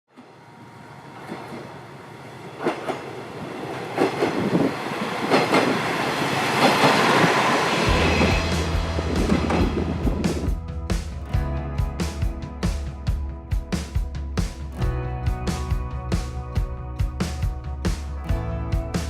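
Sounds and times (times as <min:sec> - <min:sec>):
rushing noise: 0:00.4 - 0:11.2
music with low bass line: 0:07.9 - 0:19.0.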